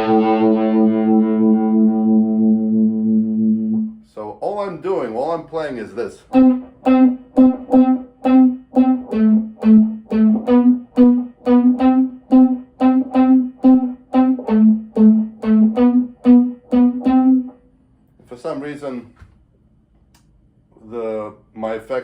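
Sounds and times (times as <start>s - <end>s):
electric guitar with vibe effect: 0.0s - 4.0s, 6.3s - 17.7s.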